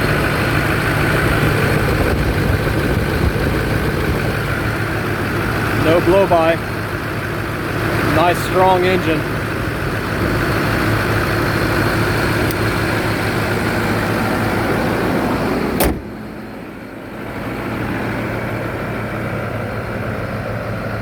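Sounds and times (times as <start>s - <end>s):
diesel engine idling: 0.0s - 21.0s
sharp slam: 15.7s - 16.2s.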